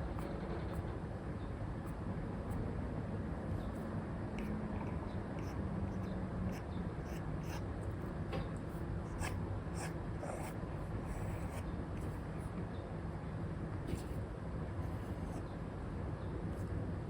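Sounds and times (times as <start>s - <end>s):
low background noise: 0.0s - 17.0s
stylus scratching and tapping screen: 5.4s - 7.6s.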